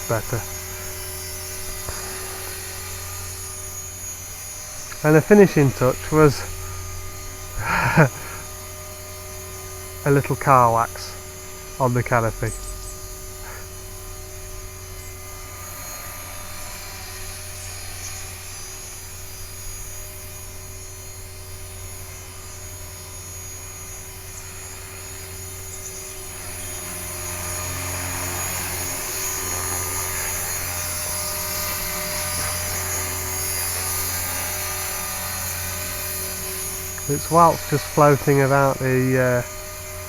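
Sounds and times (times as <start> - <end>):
electric motor whine: 0.0 - 40.0
helicopter rotor drone: 0.0 - 40.0.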